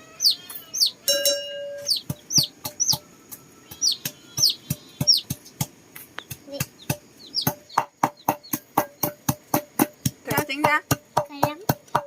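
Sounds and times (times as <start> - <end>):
high falling bird chirps: 0.0 - 5.4, 6.1 - 9.1
chopping knocks on wooden board: 6.3 - 12.0.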